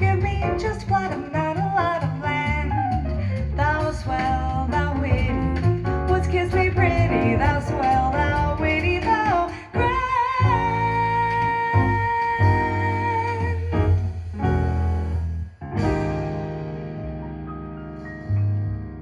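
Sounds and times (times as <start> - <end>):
woman singing jazz: 0.0 - 14.8
guitar accompaniment: 15.8 - 19.0.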